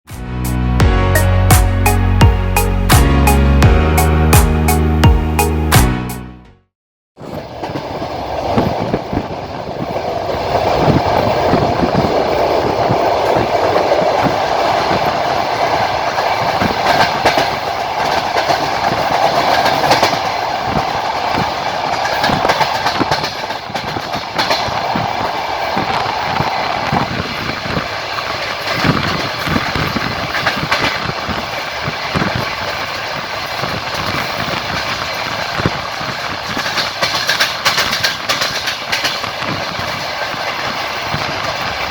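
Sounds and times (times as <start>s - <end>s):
train wheels clattering over rail joints: 7.2s - 41.9s.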